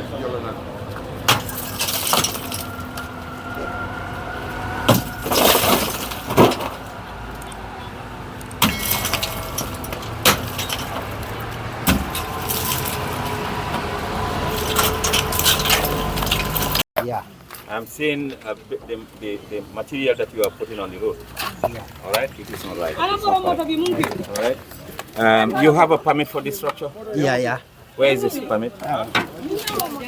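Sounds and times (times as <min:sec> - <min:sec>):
debris clattering: 0:00.9 - 0:07.5, 0:08.5 - 0:16.8
demolition bangs and crashes: 0:01.0 - 0:07.2, 0:08.5 - 0:16.8.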